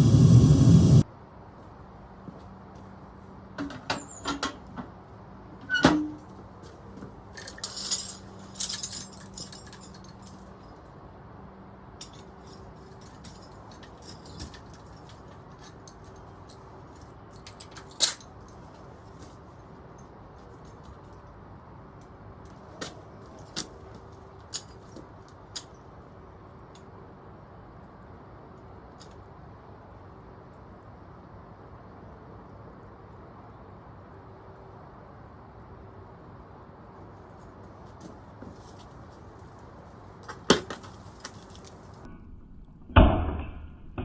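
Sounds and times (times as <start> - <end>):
metallic clinks of tools: 7.3 - 10.7, 12.0 - 16.6, 17.3 - 19.3.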